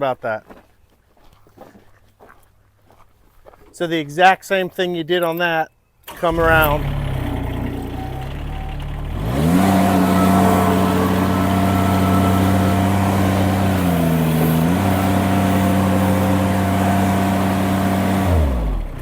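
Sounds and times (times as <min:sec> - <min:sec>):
skid steer engine revving: 0:06.2 - 0:19.0.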